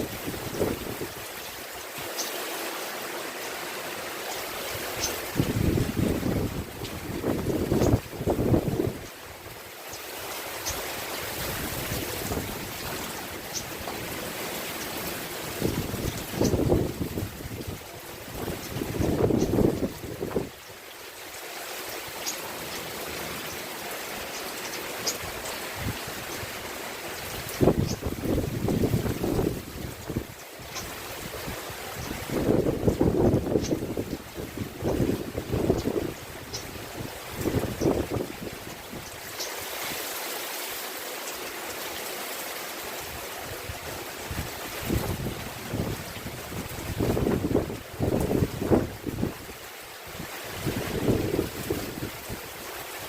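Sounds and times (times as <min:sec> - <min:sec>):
wind buffeting microphone: 0:00.0 - 0:01.3, 0:04.8 - 0:09.6, 0:15.4 - 0:20.6, 0:27.2 - 0:39.3, 0:43.6 - 0:52.7
rain falling: 0:00.0 - 0:53.0.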